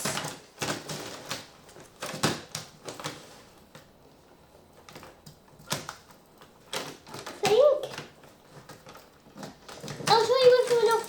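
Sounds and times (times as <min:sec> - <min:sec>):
plastic toy and packaging clicks: 0:04.8 - 0:11.0.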